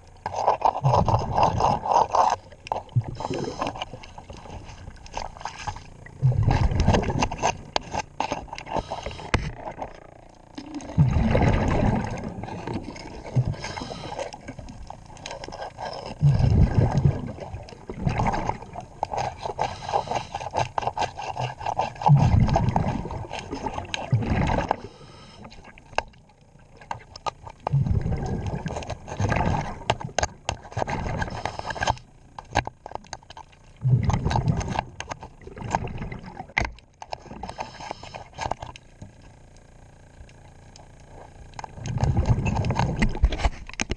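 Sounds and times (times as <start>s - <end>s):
exhaled bubbles rumbling: 0.0s - 43.9s
underwater scuba breathing: 0.7s - 9.9s, 10.5s - 25.8s, 30.8s - 32.2s, 37.3s - 38.6s
hand tool scraping a propeller: 19.0s - 23.7s.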